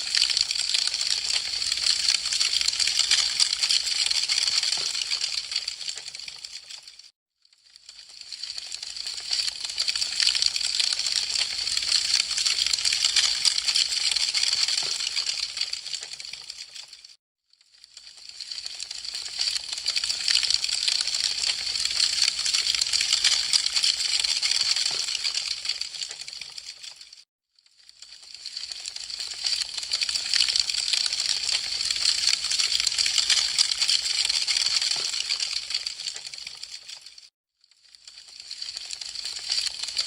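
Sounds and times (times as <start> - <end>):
wood fire crackling: 0.0 - 6.8, 8.0 - 16.9, 18.4 - 27.0, 38.1 - 40.0.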